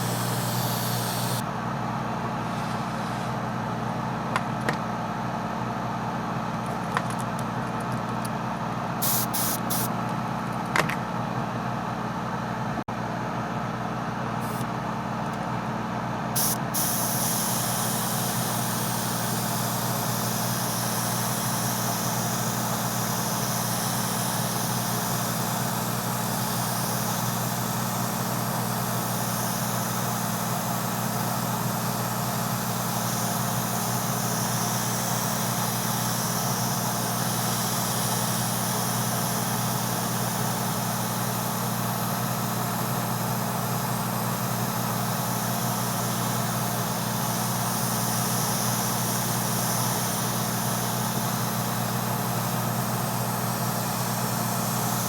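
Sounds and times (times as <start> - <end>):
airbrush hissing: 0.0 - 1.4, 9.0 - 9.9, 16.4 - 55.0
airbrush compressor running: 0.0 - 4.8, 9.0 - 11.0, 14.3 - 14.7, 16.3 - 55.0.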